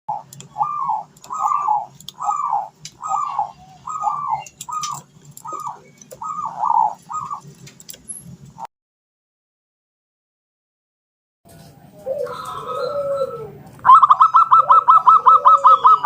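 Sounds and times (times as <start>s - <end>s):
dove cooing: 0.1s - 7.6s, 11.9s - 16.0s
steady low hum: 0.1s - 8.7s.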